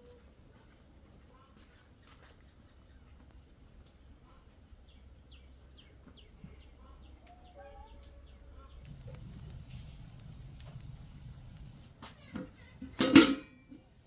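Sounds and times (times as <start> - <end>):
faint high bird chirps: 4.2 - 9.7.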